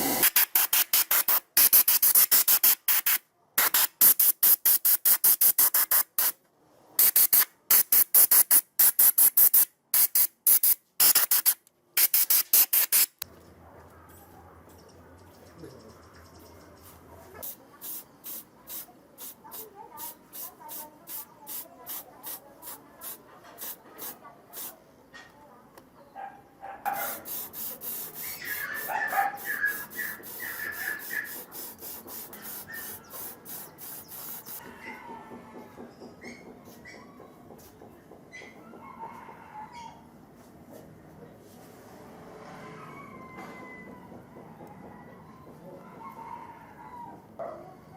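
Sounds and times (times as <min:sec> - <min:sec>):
spray nozzle hissing in bursts: 0:07.0 - 0:13.1, 0:17.4 - 0:24.7, 0:27.1 - 0:34.6
scrubbing on rusty metal: 0:27.2 - 0:34.6.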